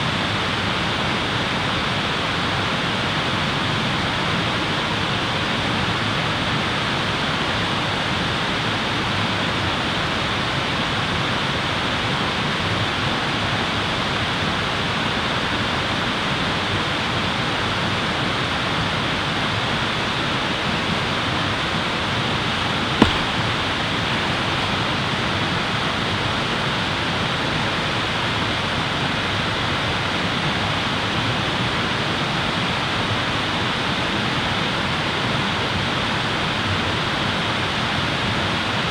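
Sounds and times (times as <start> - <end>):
sharp pop: 23.0 - 24.4.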